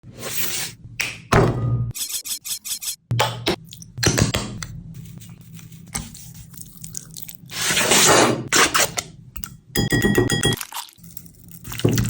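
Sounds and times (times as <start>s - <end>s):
food scraping strokes: 5.0s - 9.0s.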